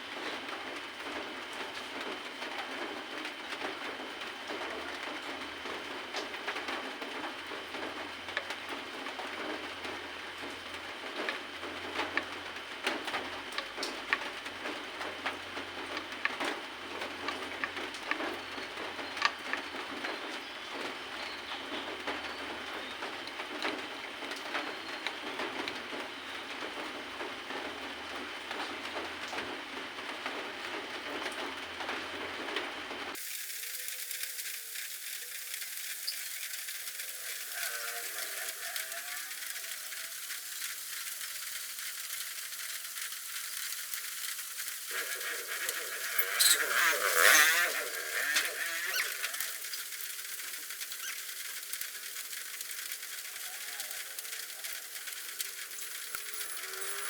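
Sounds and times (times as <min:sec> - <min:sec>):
steady hiss: 0:33.1 - 0:57.0
light clicks and small rattles: 0:33.6 - 0:57.0.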